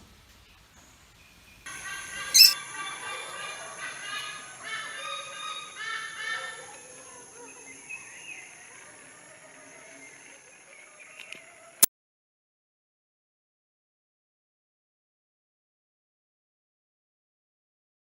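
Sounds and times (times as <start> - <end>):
birds calling: 1.7 - 6.6.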